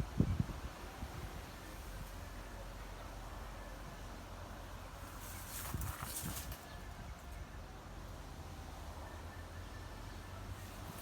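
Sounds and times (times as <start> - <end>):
wind buffeting microphone: 0.0 - 1.5
brief rustle: 5.1 - 6.8.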